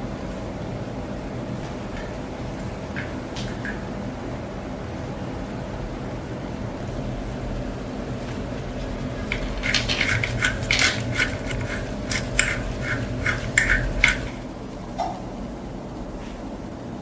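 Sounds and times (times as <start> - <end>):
steady low hum: 0.0 - 17.0
small metal parts clinking: 8.8 - 14.3.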